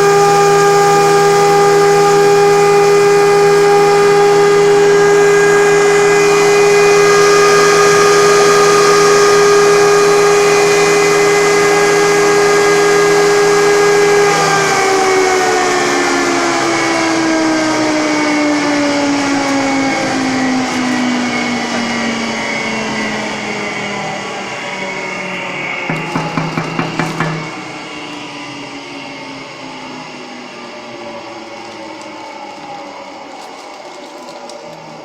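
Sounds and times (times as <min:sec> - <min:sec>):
mill motor winding down: 0:00.0 - 0:35.0
quick knocks: 0:25.9 - 0:27.6.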